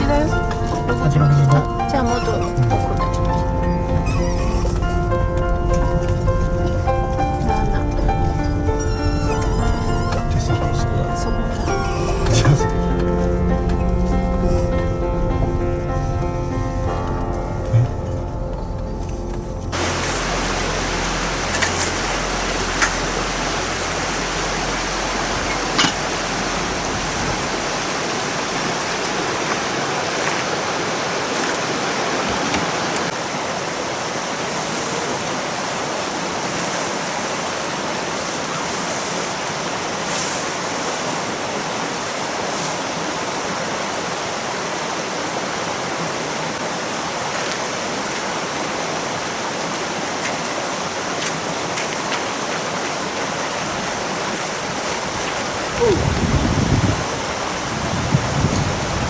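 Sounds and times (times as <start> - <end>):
low hum: 0.0 - 28.7
river rushing: 0.0 - 59.0.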